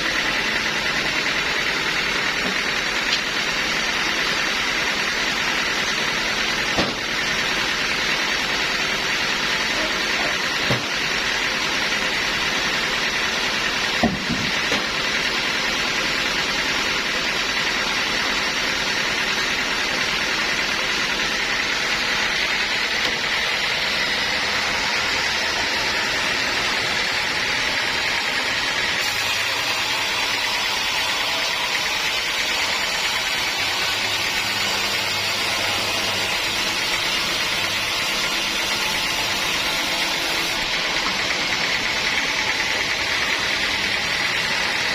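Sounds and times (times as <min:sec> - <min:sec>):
sawmill machinery running: 0:00.0 - 0:44.9
knock: 0:14.0 - 0:14.8.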